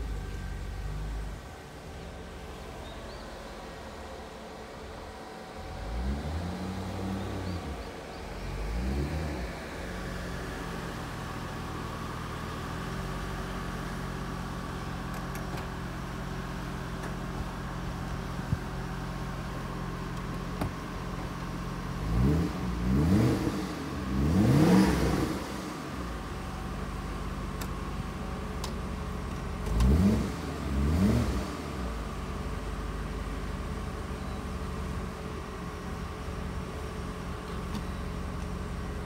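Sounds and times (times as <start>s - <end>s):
car engine revving and idling: 0.0s - 39.0s.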